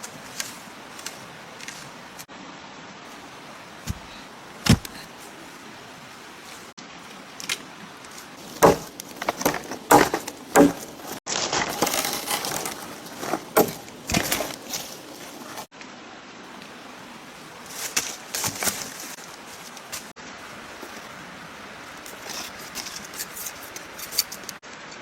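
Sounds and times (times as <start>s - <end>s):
rustling: 8.0s - 15.7s, 17.6s - 20.1s, 22.0s - 24.6s
chopping knocks on wood: 8.5s - 11.0s, 13.2s - 14.6s.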